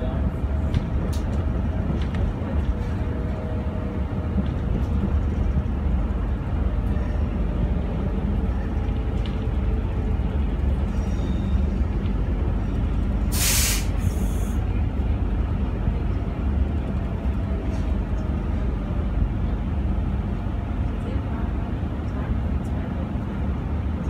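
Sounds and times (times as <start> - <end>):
train wheels rumbling: 0.0 - 24.0
loud hiss of air: 13.3 - 14.6.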